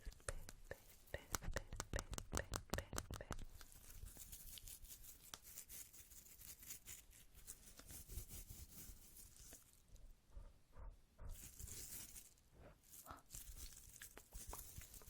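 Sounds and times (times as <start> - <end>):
faint light clicks and taps: 0.0 - 4.0.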